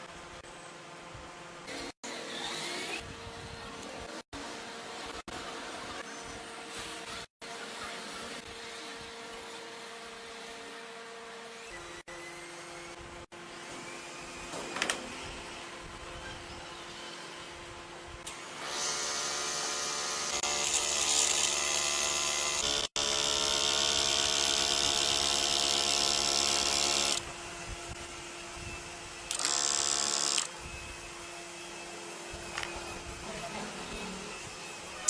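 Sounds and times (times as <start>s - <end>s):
small electric motor whining: 18.2s - 35.0s.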